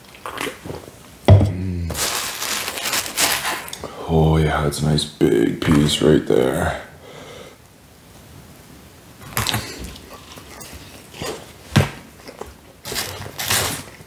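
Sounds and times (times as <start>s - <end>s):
chewing and mouth sounds: 0.0s - 0.8s, 9.3s - 11.6s.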